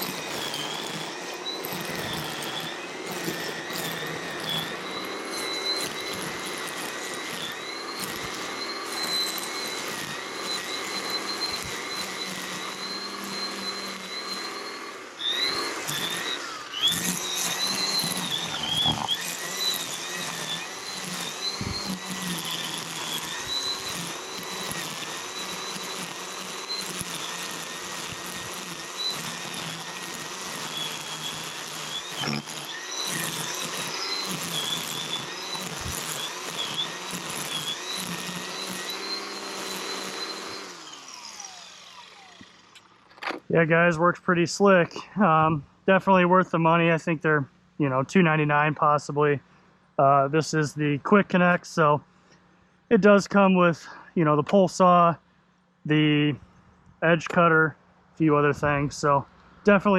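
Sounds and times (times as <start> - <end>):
power tool motor whining: 0.0 - 43.5.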